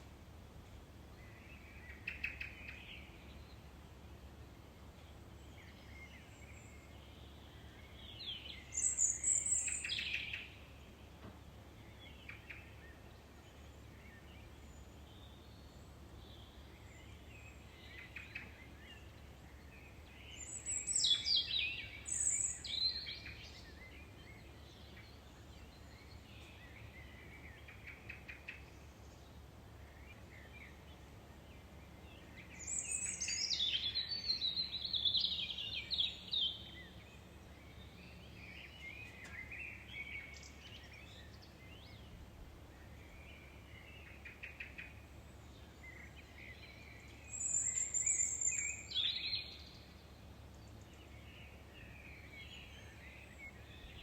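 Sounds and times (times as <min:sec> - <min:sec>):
faint bird chirps: 0:42.8 - 0:54.0.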